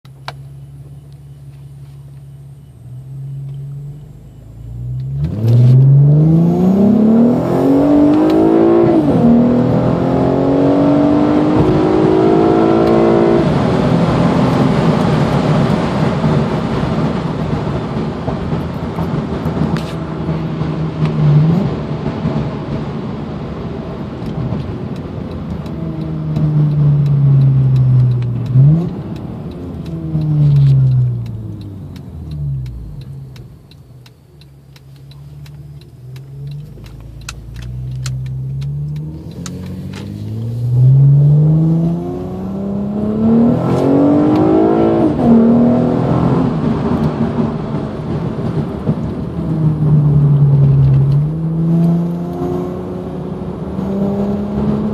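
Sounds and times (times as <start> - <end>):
intake and exhaust roar: 0.1 - 54.9
car engine revving: 0.2 - 54.9.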